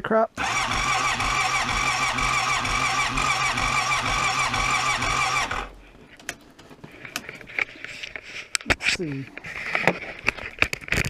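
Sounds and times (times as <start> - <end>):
electric starter cranking engine: 0.4 - 5.9.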